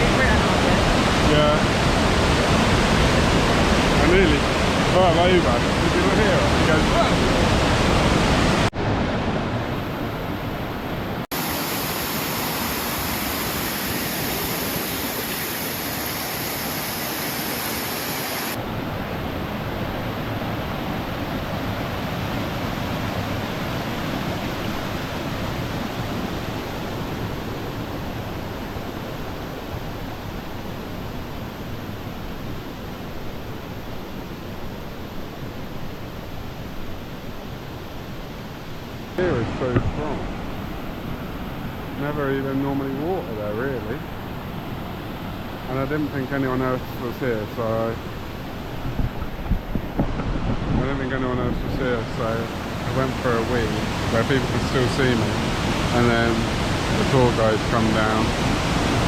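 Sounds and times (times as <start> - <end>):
waterfall rushing: 0.0 - 31.3, 50.9 - 59.0.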